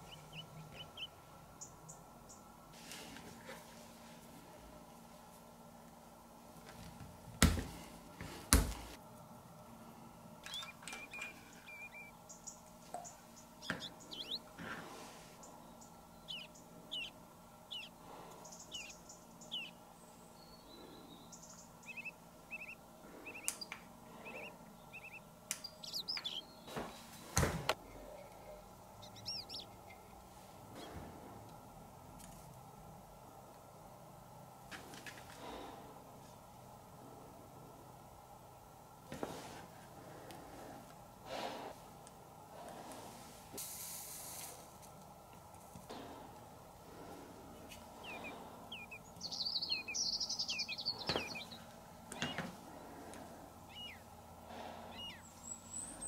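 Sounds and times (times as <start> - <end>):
small bird chirping: 0.0 - 2.4, 10.4 - 14.6, 15.4 - 27.2, 28.2 - 30.1, 48.0 - 52.5, 53.6 - 54.2, 54.8 - 56.0.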